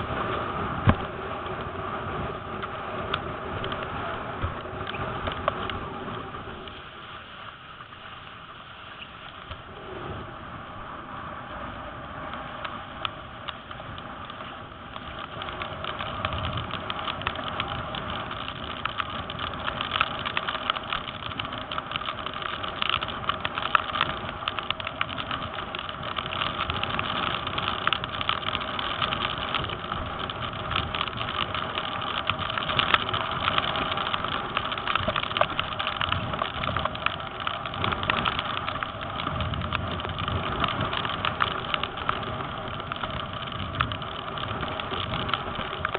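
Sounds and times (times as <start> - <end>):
strong wind on microphone: 0.0 - 6.8, 9.4 - 45.9.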